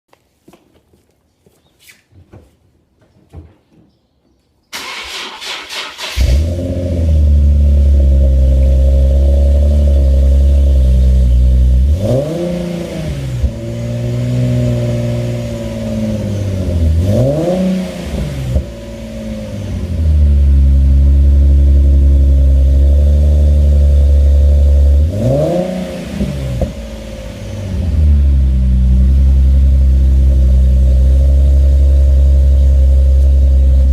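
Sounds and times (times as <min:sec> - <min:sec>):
starter cranking engine: 0:04.8 - 0:06.5
car engine idling: 0:04.8 - 0:17.1, 0:18.2 - 0:33.9
car engine revving: 0:04.8 - 0:33.9.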